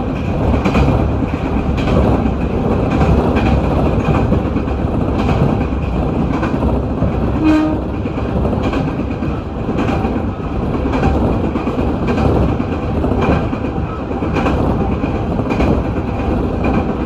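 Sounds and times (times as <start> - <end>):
train rumble: 0.0 - 17.0
train wheels knocking over rail joints: 0.0 - 17.0
short train horn toot: 7.4 - 7.9.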